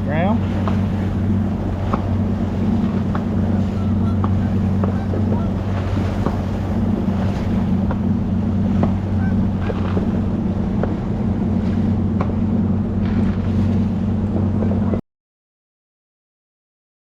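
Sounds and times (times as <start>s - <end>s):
outboard motor humming: 0.0s - 15.0s
distant fireworks popping: 0.5s - 3.5s, 4.1s - 11.2s, 12.1s - 13.6s.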